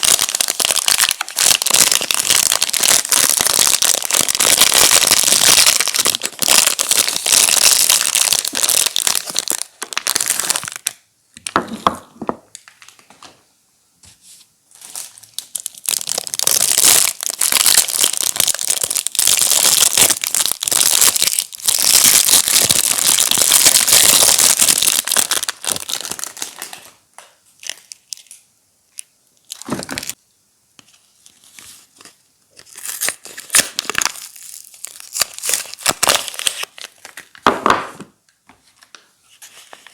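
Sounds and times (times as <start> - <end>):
wrappers crinkling and tearing: 0.0 - 11.0, 14.7 - 27.0, 31.2 - 37.4.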